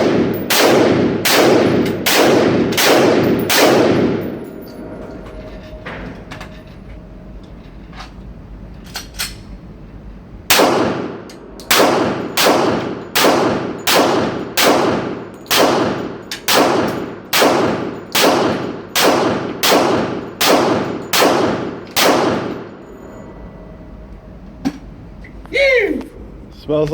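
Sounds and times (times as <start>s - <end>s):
rifle firing single shots: 0.0s - 4.2s, 10.5s - 22.6s.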